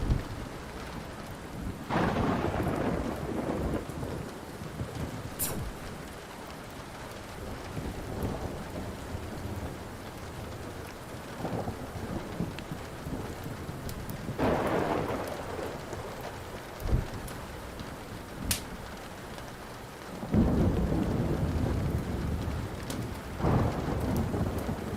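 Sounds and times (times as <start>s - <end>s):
low thunder thump: 0.0s - 0.4s, 16.8s - 17.3s
rolling thunder: 0.0s - 6.2s, 7.2s - 18.9s, 20.2s - 24.9s
steady rain: 0.0s - 24.9s
wood fire crackling: 0.0s - 24.9s.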